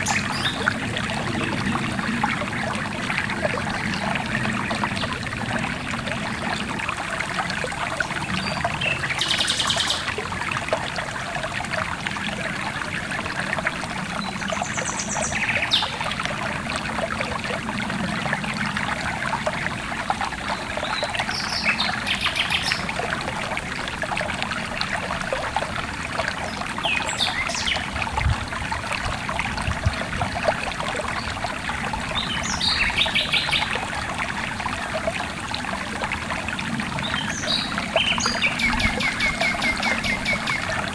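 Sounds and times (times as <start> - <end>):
stream water trickling: 0.0 - 40.9
songbirds trilling: 20.5 - 22.9, 26.5 - 27.9, 32.1 - 33.7, 37.0 - 40.9.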